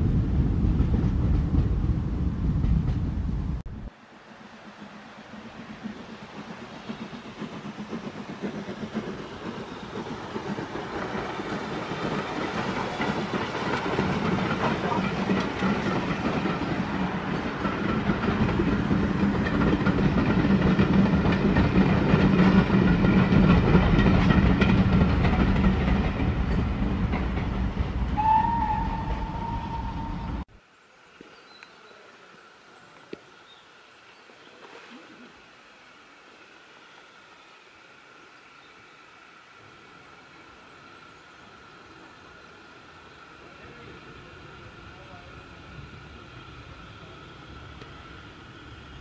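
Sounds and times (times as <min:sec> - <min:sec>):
train wheels clattering over joints: 0:04.8 - 0:28.2.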